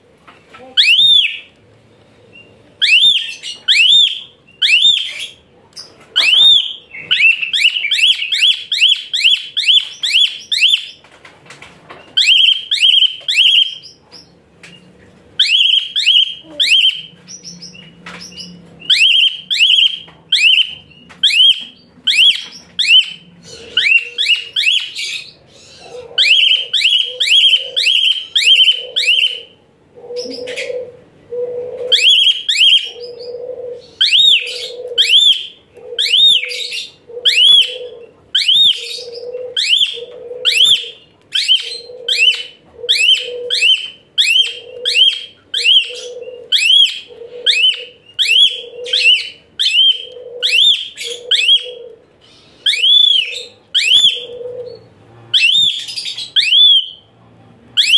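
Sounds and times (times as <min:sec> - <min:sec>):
starling shrill whistled song: 0:15.4 - 0:23.2, 0:23.8 - 0:25.4, 0:52.6 - 0:54.3, 0:55.4 - 0:57.0.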